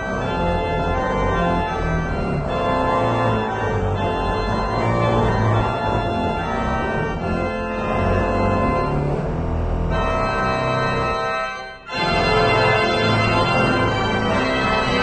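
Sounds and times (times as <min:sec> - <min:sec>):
organ playing sustained chords: 0:00.0 - 0:15.0.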